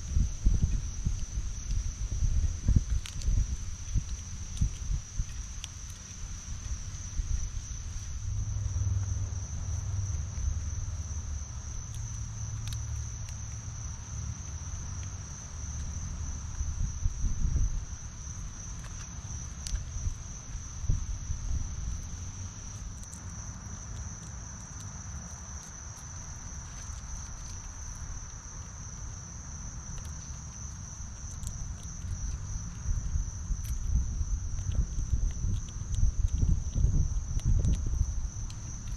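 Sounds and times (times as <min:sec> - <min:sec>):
crickets trilling: 0:00.0 - 0:38.9
low rumble: 0:06.4 - 0:22.7.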